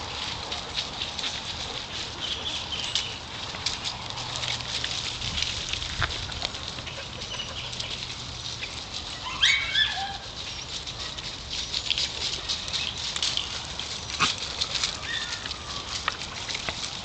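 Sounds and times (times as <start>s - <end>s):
dogs scuffing and clicking: 0.0s - 17.0s
high-pitched dog call: 9.2s - 10.3s.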